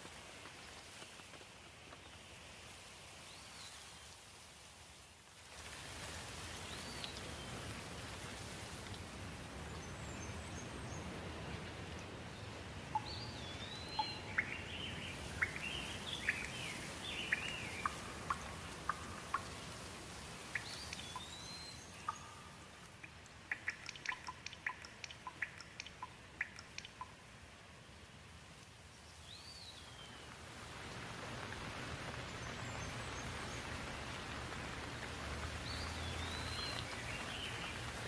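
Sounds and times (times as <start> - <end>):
steady rainfall: 0.0 - 38.0
water drips: 5.6 - 10.8, 11.5 - 27.6, 30.0 - 38.0
songbird singing: 9.6 - 27.2, 28.8 - 30.4, 35.4 - 38.0.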